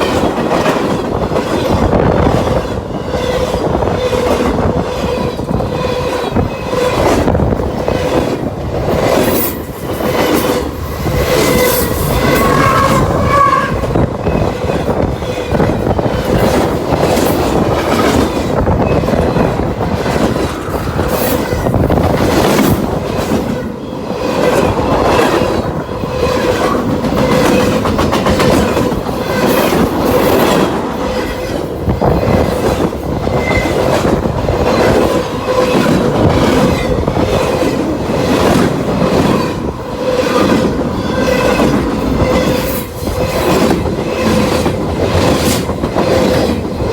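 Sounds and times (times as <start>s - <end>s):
freight train rumble: 0.0s - 46.9s
train wheels clicking over rail joints: 0.0s - 46.9s
wheel squeal: 9.2s - 15.6s.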